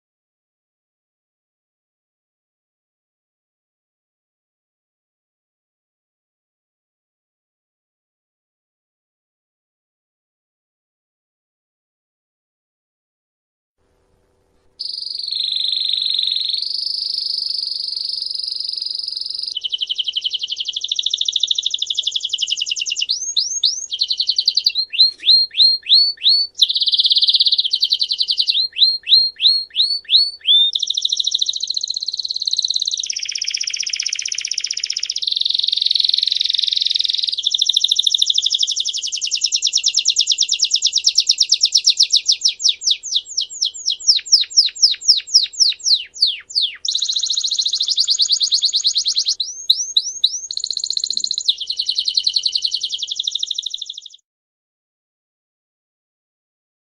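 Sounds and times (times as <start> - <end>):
songbird trilling: 14.8 - 54.2.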